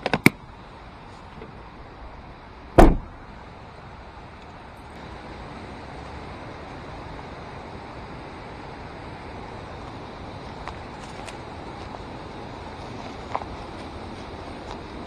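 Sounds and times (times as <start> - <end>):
vehicle door slamming: 2.7 - 3.2.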